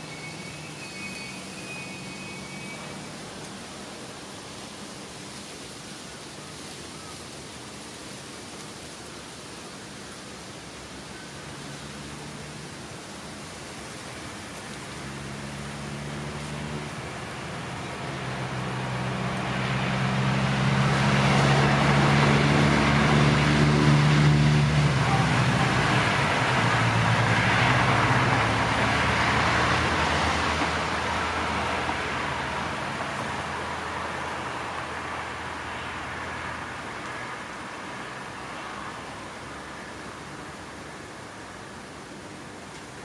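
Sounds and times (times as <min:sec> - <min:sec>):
electric train running past: 0:00.0 - 0:03.5, 0:15.1 - 0:36.7.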